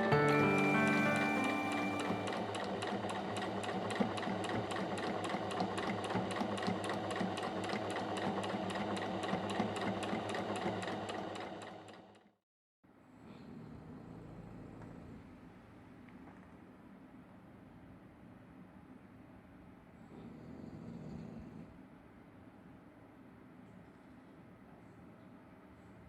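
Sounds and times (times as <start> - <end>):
sewing machine stitching: 0.9 - 12.3.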